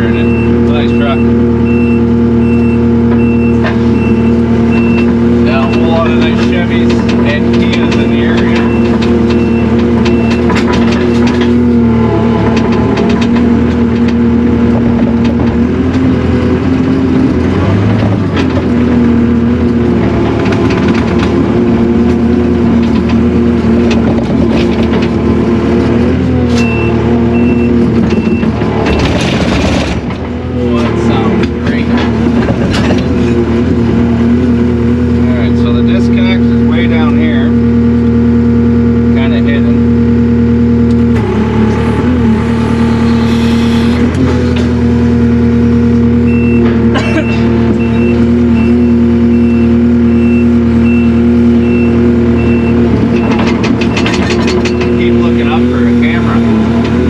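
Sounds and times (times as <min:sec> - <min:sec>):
back-up alarm beeping: 0:00.0 - 0:06.1, 0:07.9 - 0:10.6, 0:26.6 - 0:28.6, 0:46.2 - 0:54.1
diesel engine running: 0:00.0 - 0:57.0.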